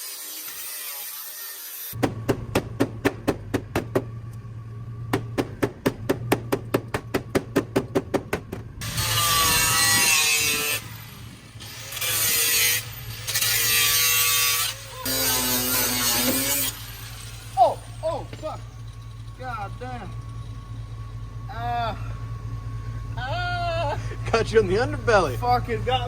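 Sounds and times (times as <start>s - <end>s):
angle grinder cutting sheet metal: 0.0s - 2.0s, 8.8s - 20.1s
low hum: 8.4s - 26.0s.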